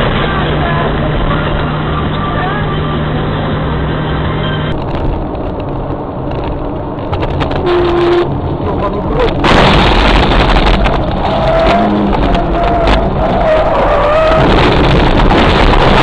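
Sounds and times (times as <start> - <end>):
loud rushing noise: 0.0 - 16.0
vehicle and road noise: 0.0 - 16.0
horn-like tone: 7.6 - 8.4.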